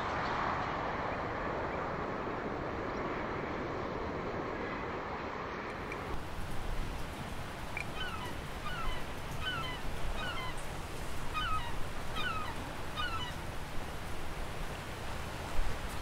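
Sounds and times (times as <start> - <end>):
bird calling: 7.6 - 13.6.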